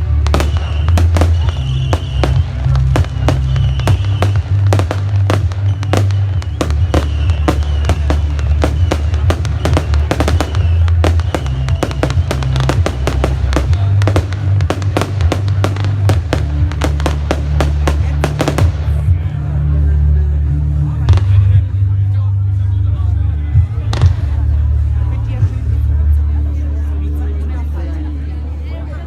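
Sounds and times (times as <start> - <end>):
fireworks banging and crackling: 0.0 - 19.6, 23.8 - 24.6
loud music with heavy bass: 0.0 - 19.7.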